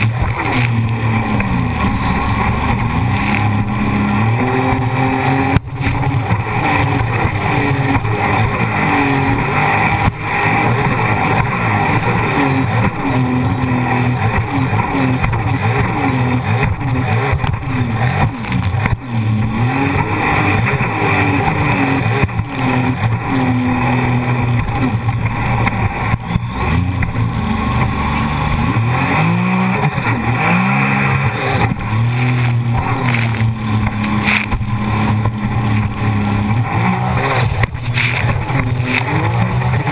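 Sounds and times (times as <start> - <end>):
rushing noise: 0.0 - 12.6, 23.6 - 39.9
jet ski engine revving: 0.0 - 39.9.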